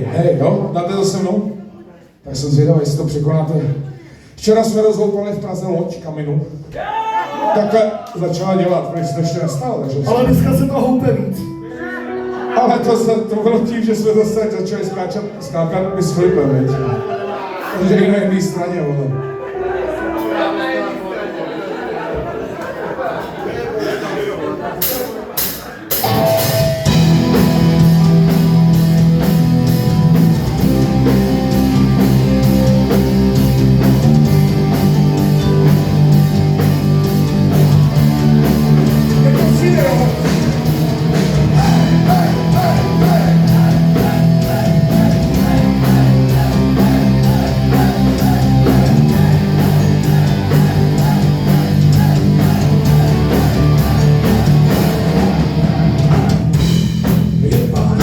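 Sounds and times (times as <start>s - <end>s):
fast drum beat: 24.8s - 58.0s
live rock band: 24.8s - 58.0s.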